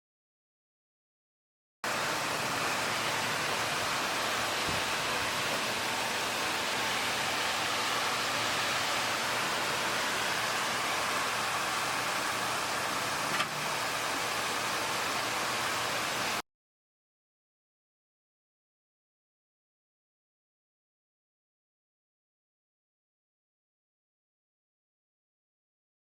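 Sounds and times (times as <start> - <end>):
carpet washing machine spraying: 1.9 - 16.4.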